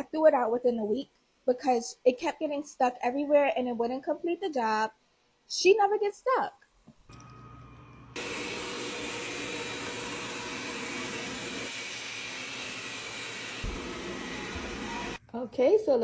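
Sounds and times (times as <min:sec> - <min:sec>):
robot vacuum motor whining hiss: 0:08.2 - 0:15.2.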